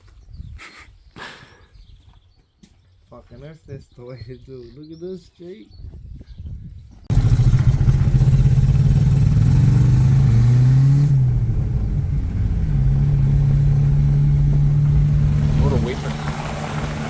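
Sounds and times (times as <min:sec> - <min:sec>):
car engine running under load: 0:07.1 - 0:17.0.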